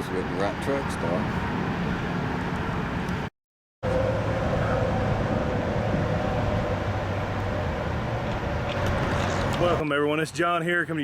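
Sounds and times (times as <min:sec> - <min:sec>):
traffic rumble: 0:00.0 - 0:11.0
low hum: 0:03.8 - 0:09.6.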